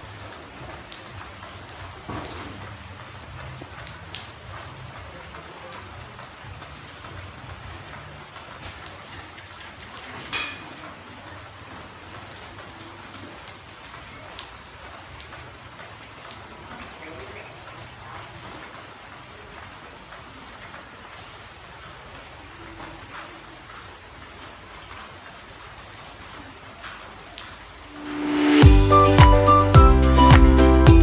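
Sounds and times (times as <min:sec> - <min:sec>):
rain falling on road and plants: 0:00.0 - 0:31.0
brief sharp sound: 0:27.9 - 0:31.0.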